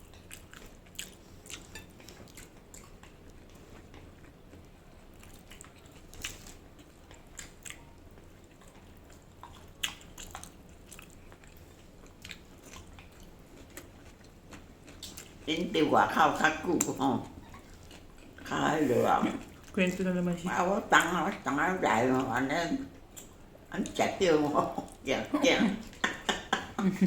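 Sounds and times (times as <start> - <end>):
chewing and mouth smacks: 0.0 - 15.5, 16.8 - 18.5.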